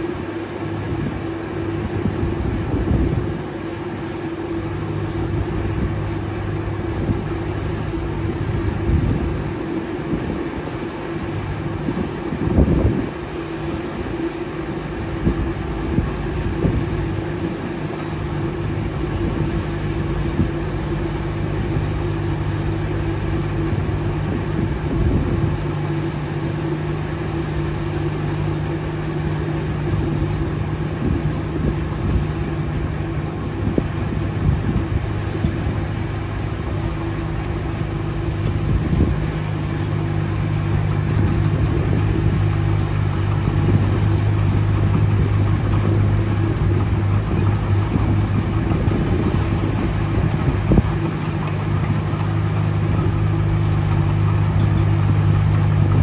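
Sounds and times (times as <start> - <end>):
heavy machinery diesel engine running: 0.0 - 56.0.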